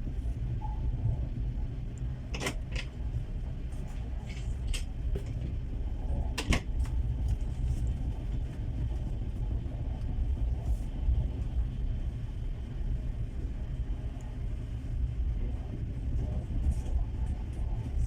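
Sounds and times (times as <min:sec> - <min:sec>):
train rumble: 0:00.0 - 0:18.0.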